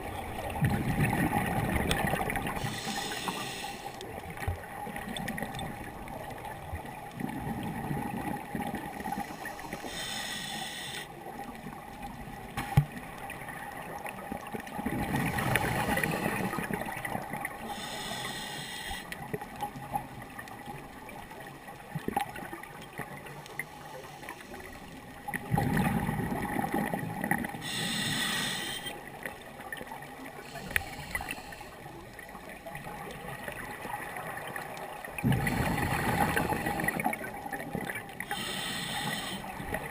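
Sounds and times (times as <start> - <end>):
exhaled bubbles burbling: 0.0 - 2.6, 7.2 - 9.1, 14.7 - 17.4, 25.2 - 27.6, 35.1 - 38.2
regulator inhale hiss: 2.6 - 4.0, 9.0 - 11.2, 17.6 - 19.2, 23.6 - 25.0, 27.6 - 29.0, 30.4 - 31.9, 38.2 - 39.6
faint hum: 7.3 - 11.4, 17.6 - 19.2, 27.4 - 29.2, 38.2 - 39.9.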